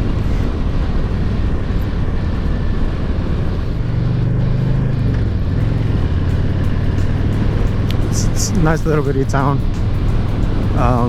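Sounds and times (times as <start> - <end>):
motorcycle engine cruising: 0.0 - 11.0
wind noise: 0.0 - 11.0.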